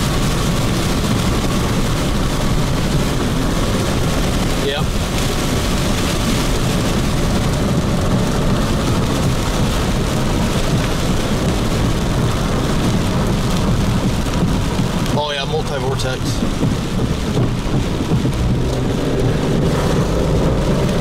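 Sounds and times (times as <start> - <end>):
heavy rain on car roof: 0.0 - 21.0.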